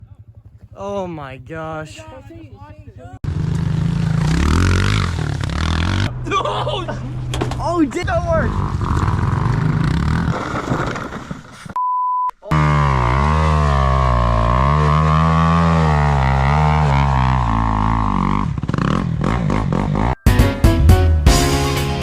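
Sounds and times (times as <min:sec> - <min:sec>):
short steady beep: 0:11.8 - 0:12.3.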